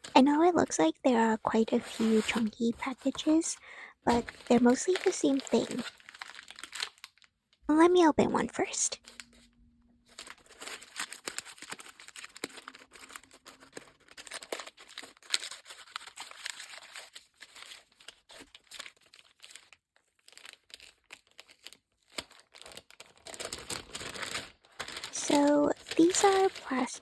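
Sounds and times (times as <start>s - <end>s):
packaging crinkling and tearing: 0.0s - 0.7s, 1.5s - 7.6s, 8.6s - 27.0s.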